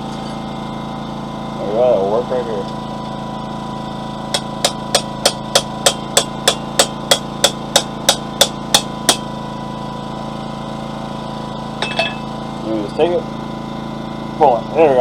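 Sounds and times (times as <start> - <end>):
generator running: 0.0 - 15.0
hammer tapping hot steel: 4.3 - 9.3.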